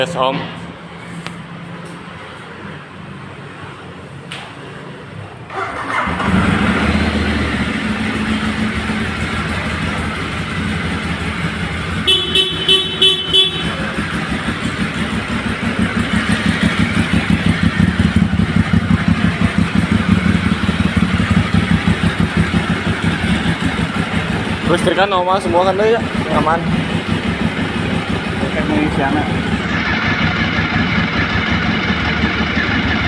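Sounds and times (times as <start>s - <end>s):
motorcycle engine starting and idling: 5.5s - 33.0s
horn short toots: 12.0s - 14.0s.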